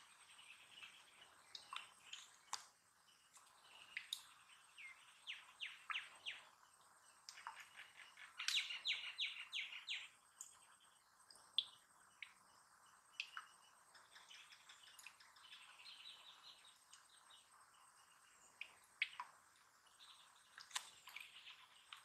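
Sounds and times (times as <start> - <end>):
small birds chirping: 0.0 - 22.0
faint clicks: 3.3 - 4.3, 20.5 - 22.0.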